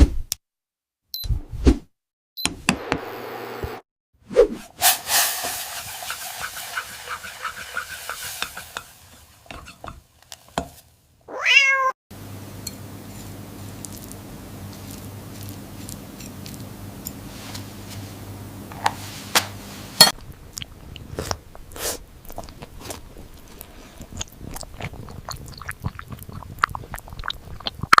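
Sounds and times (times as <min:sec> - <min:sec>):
cat meowing: 0:11.3 - 0:12.0
steady low hum: 0:12.2 - 0:22.2.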